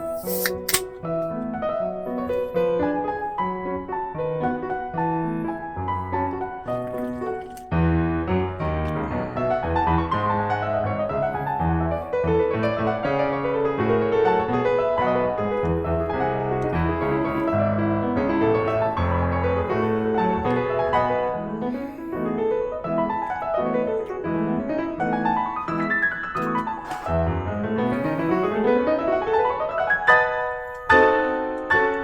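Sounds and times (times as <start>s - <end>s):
piano music with quick runs: 7.6s - 32.0s.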